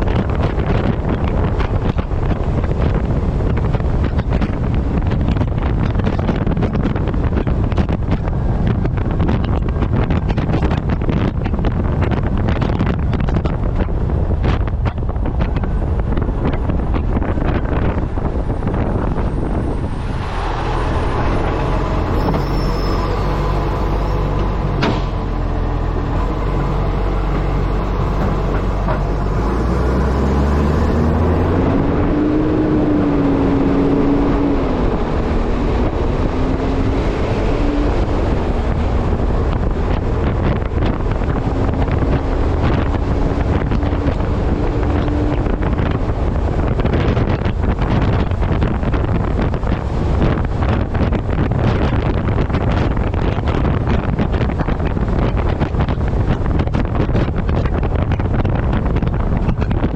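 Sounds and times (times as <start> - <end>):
diesel truck engine running: 0.0 - 59.9
wind buffeting microphone: 0.0 - 59.9
wavering whine: 18.5 - 32.1.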